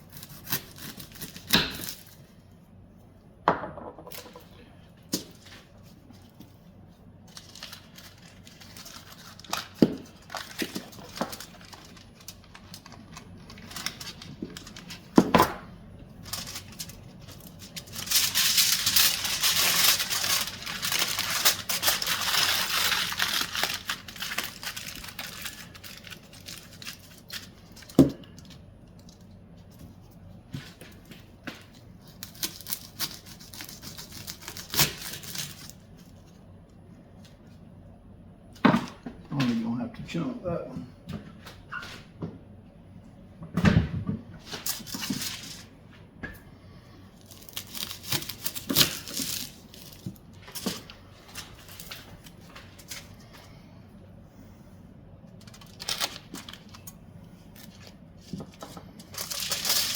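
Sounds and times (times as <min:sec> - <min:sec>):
wrapping crinkling and tearing: 0:00.0 - 0:02.4, 0:05.1 - 0:15.2, 0:16.2 - 0:30.2, 0:31.6 - 0:36.4, 0:44.5 - 0:45.7, 0:47.2 - 0:53.4, 0:55.3 - 0:59.9.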